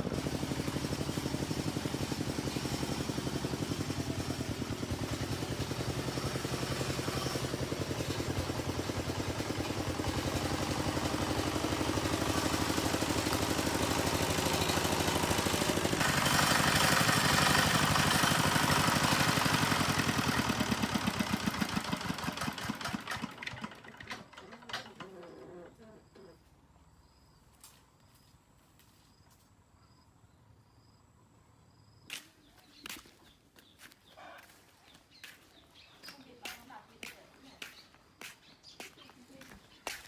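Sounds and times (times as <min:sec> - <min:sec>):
engine running with rapid pulsing: 0:00.0 - 0:24.9.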